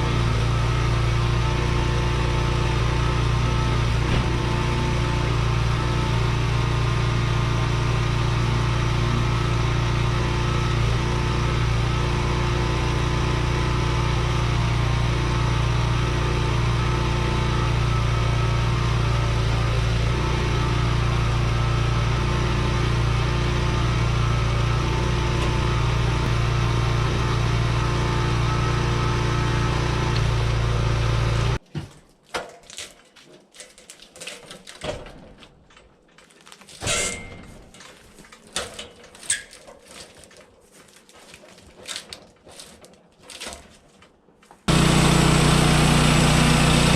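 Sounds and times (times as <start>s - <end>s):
engine humming: 0.0s - 31.6s, 44.6s - 46.9s.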